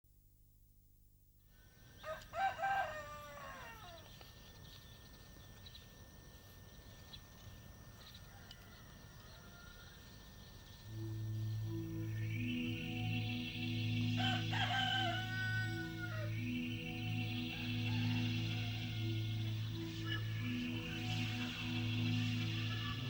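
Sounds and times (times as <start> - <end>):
faint rural background: 0.1 - 23.0
rooster crowing: 2.0 - 4.2, 8.0 - 10.7, 14.0 - 23.0
steady low music: 10.3 - 23.0.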